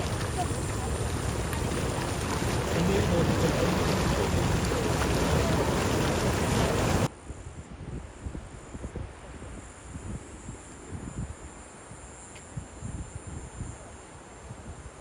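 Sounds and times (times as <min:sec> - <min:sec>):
faint voices: 0:00.0 - 0:07.1
wind buffeting microphone: 0:00.0 - 0:13.9.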